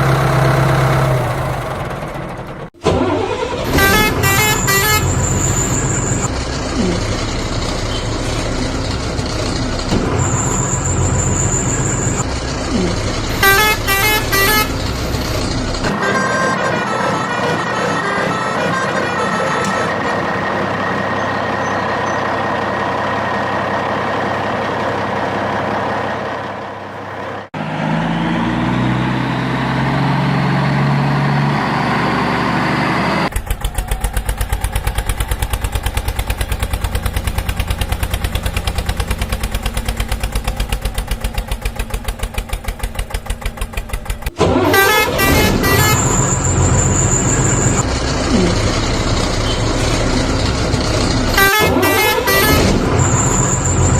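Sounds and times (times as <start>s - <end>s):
truck engine: 0.0s - 53.9s
vehicle horn honking: 3.6s - 6.3s, 13.3s - 15.1s, 15.9s - 20.3s, 44.4s - 48.6s, 51.3s - 53.9s.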